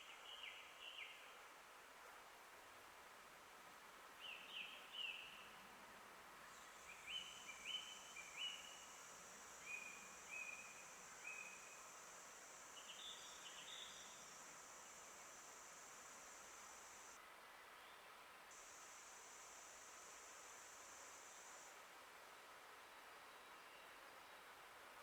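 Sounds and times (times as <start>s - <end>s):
steady high hiss: 0.0s - 17.5s, 18.1s - 25.0s.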